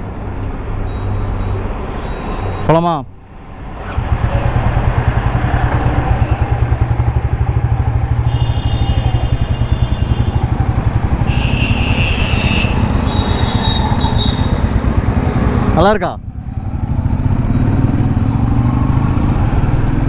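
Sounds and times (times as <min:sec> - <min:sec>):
motorcycle engine thumping: 0:03.3 - 0:15.8.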